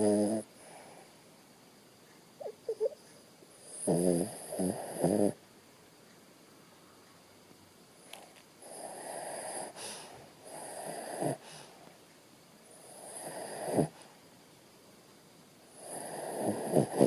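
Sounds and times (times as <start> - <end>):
dog snoring: 0.0 - 0.8, 3.6 - 5.4, 8.6 - 11.7, 12.8 - 14.1, 15.8 - 17.0.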